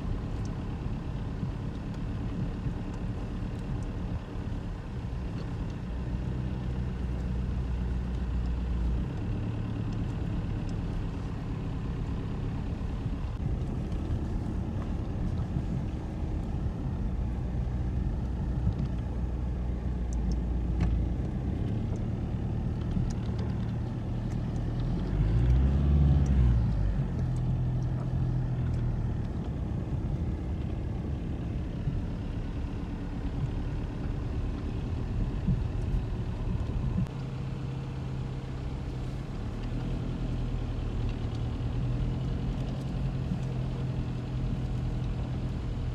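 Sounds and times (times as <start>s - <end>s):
vehicle engine running: 0.0s - 45.9s.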